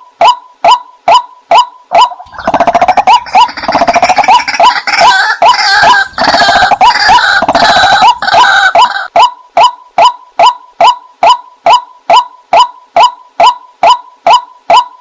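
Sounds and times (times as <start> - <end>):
waterhen calls: 0.2 - 14.9.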